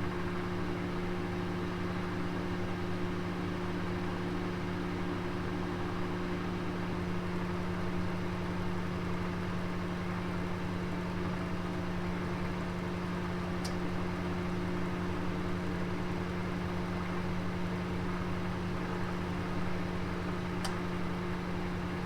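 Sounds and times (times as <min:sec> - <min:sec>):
oven humming and hissing: 0:00.0 - 0:22.0.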